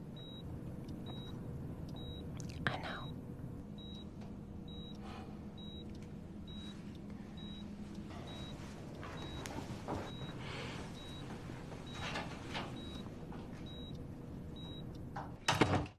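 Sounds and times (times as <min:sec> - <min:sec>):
low steady hum: 0:00.0 - 0:15.9
soft rustling: 0:07.8 - 0:12.5.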